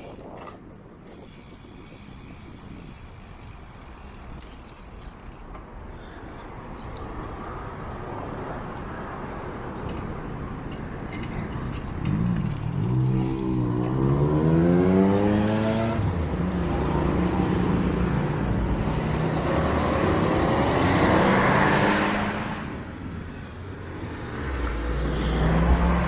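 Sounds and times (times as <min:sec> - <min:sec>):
vehicle engine accelerating: 0:12.0 - 0:22.8, 0:24.3 - 0:26.0.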